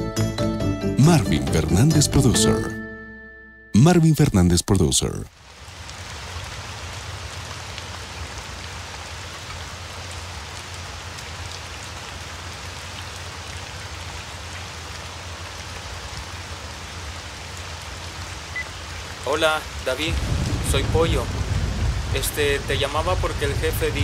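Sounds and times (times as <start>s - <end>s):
steady rain falling: 4.8s - 24.0s.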